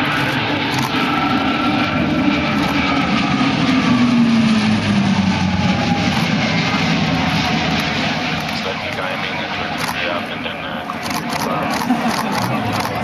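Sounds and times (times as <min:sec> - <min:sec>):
turboprop aircraft droning past: 0:00.0 - 0:13.0.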